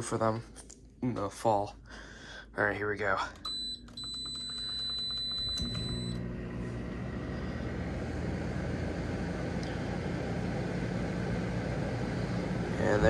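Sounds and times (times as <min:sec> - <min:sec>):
air conditioner running: 0:01.6 - 0:13.0
control panel beep: 0:03.5 - 0:06.3.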